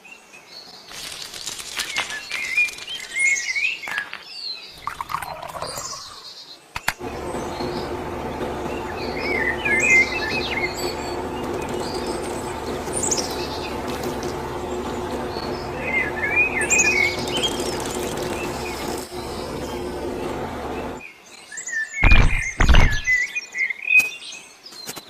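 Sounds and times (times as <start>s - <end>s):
birds chirping: 1.8s - 21.1s
steady hum: 7.0s - 21.0s.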